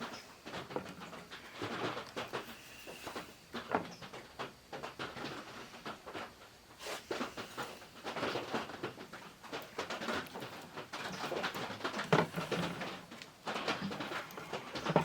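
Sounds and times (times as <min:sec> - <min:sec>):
hands handling a device: 0:06.8 - 0:15.0.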